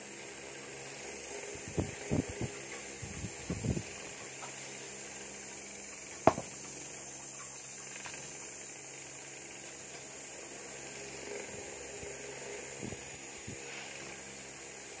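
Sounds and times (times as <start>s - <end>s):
low hum with high hiss: 0.0s - 15.0s
faint taps: 6.3s - 6.5s
sharp knock: 6.3s - 6.5s.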